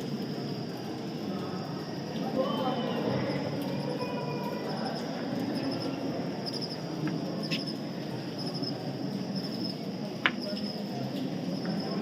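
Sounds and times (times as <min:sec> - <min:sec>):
background murmur: 0:00.0 - 0:12.0
insect-like high chirps: 0:04.8 - 0:06.8.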